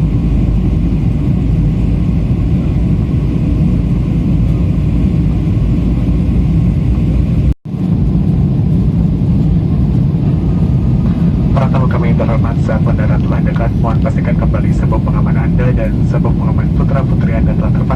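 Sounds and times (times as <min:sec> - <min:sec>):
airliner cabin engine roar: 0:00.0 - 0:17.9.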